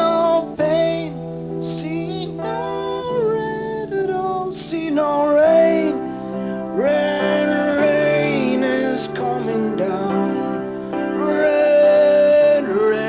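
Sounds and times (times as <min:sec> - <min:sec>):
acoustic guitar: 0:00.0 - 0:13.0
man singing: 0:00.0 - 0:13.0.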